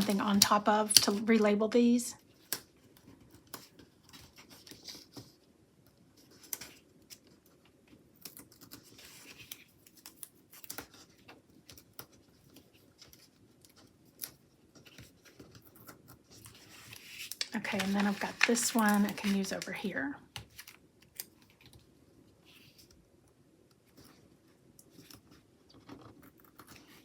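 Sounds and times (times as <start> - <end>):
paper rustling: 0.0 - 1.2, 8.4 - 21.8.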